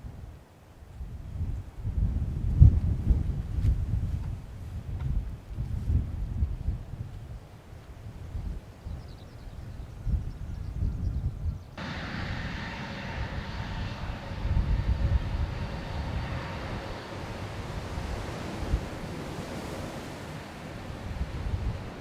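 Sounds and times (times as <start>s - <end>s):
wind rumbling on microphone: 0.0s - 22.0s
jet engines whining at takeoff: 11.8s - 22.0s.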